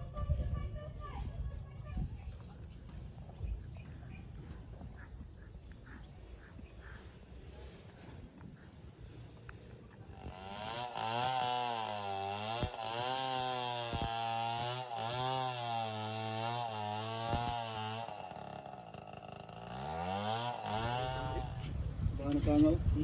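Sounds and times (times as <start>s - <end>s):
chainsaw running: 10.1s - 23.0s.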